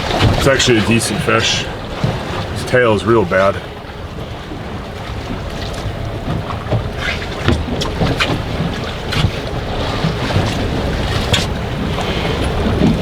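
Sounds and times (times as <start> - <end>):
water slapping boat hull: 0.0 - 13.0
wind buffeting microphone: 0.0 - 13.0
short irregular knocks: 6.2 - 13.0.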